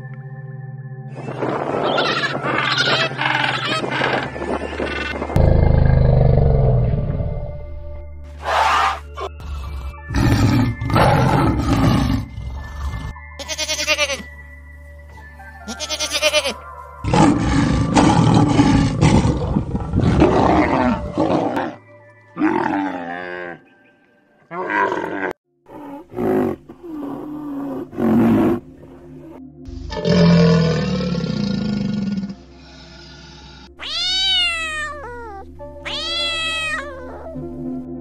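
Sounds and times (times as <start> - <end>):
background music: 0.0 - 38.0
elephant calls: 1.8 - 5.3, 8.4 - 10.9
lion roaring and growling: 5.1 - 7.4, 8.4 - 13.2, 17.0 - 21.8, 22.4 - 23.6, 24.5 - 28.7, 29.7 - 33.8.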